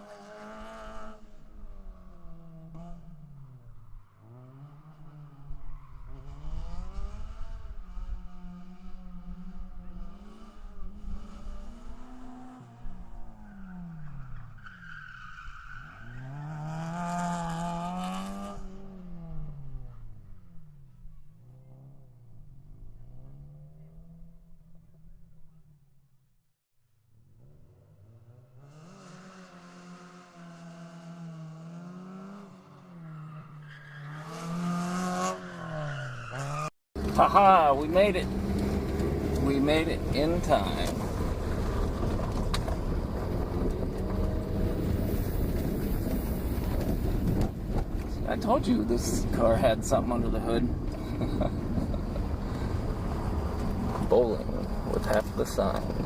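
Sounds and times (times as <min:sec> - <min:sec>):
car engine revving: 0:00.0 - 0:20.8, 0:27.2 - 0:56.0
tire noise hiss: 0:35.6 - 0:56.0.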